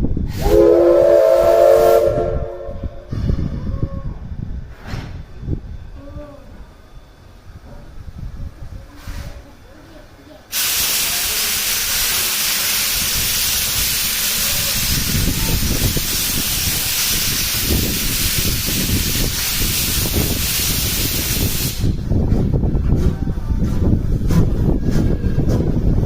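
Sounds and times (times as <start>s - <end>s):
steam locomotive venting steam: 0.1s - 3.7s, 8.4s - 9.6s, 10.4s - 26.0s
low uneven rumble: 21.8s - 26.0s.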